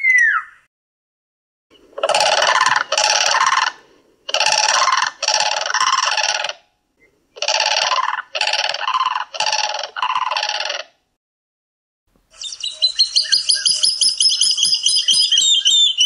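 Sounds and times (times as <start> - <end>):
bird harsh repeated call: 2.0 - 6.7, 7.4 - 10.9, 12.4 - 16.0.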